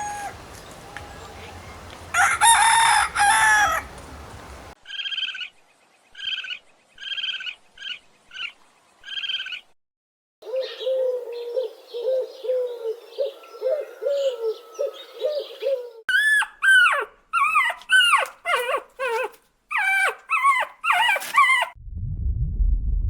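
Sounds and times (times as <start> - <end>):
animal rising and falling cries: 0.0 - 1.2, 2.1 - 4.0, 13.6 - 21.8.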